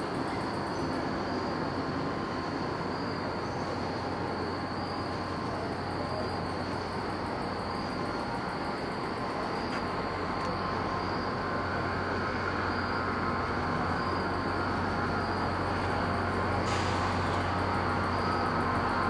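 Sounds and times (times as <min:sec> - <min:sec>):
distant train rumble: 0:00.0 - 0:19.0.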